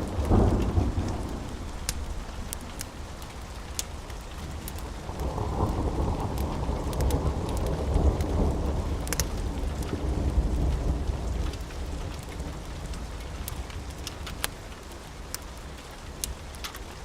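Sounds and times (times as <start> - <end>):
low rolling thunder: 0.0 - 13.2
heavy rain: 0.0 - 17.0
wood fire crackling: 0.0 - 17.0.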